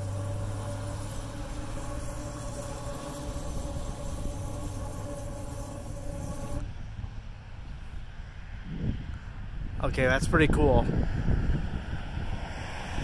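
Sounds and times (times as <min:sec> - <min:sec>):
gas flame jet hissing: 0:00.0 - 0:06.6.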